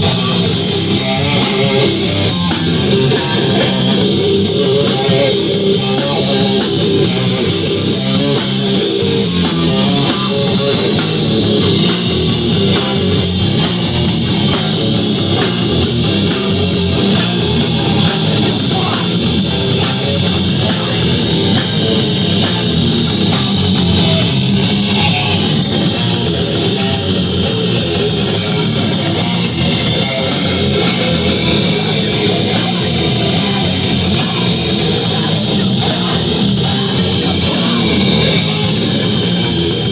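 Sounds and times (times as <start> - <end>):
live heavy rock band: 0.0 - 39.9.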